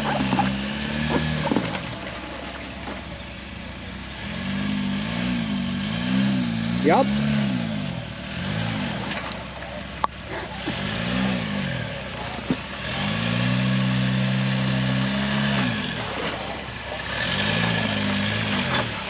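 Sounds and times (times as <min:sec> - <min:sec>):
off-road vehicle engine revving: 0:00.0 - 0:19.0.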